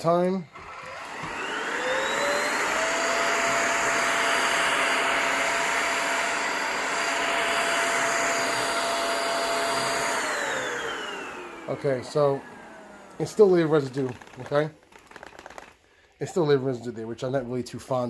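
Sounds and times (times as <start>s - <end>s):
vacuum cleaner running: 0.4s - 14.6s.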